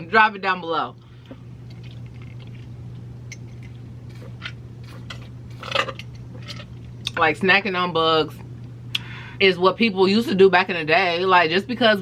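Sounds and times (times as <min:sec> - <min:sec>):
steady low hum: 0:00.0 - 0:12.0
person chewing food: 0:01.2 - 0:07.1.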